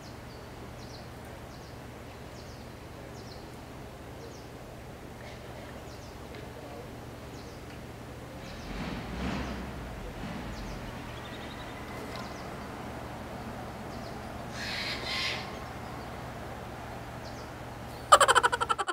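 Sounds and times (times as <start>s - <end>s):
faint bird calls: 14.5s - 16.1s, 18.0s - 18.9s.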